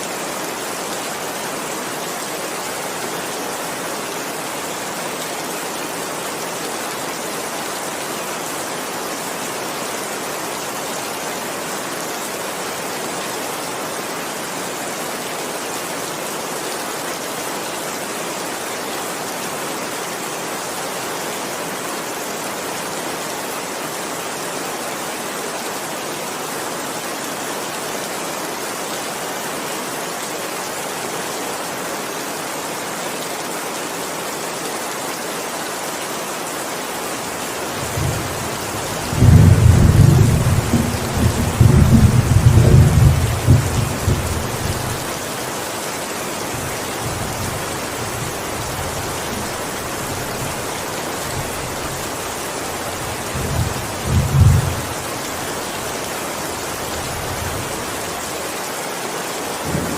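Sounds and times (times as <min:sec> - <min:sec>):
heavy rain hissing: 0:00.0 - 0:59.9
loud rolling thunderclap: 0:39.1 - 0:44.8.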